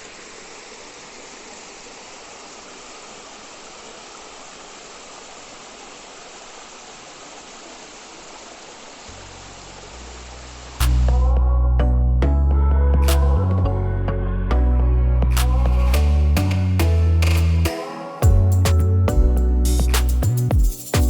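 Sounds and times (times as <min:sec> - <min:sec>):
waterfall rushing: 0:00.0 - 0:11.2
low hum: 0:09.1 - 0:20.4.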